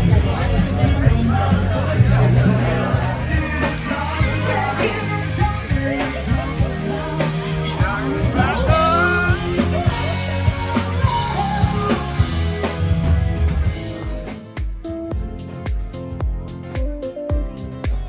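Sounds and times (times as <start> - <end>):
person singing: 0.0 - 12.9
bass guitar: 0.0 - 18.0
drums: 0.0 - 18.0
electric guitar: 0.0 - 18.0.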